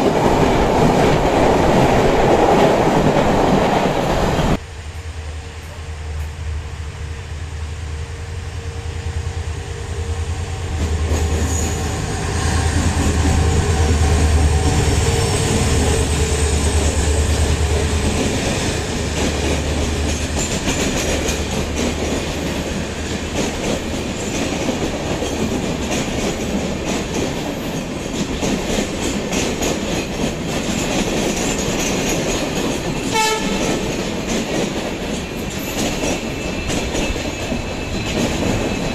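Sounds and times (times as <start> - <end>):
train wheels clattering: 10.7 - 38.9.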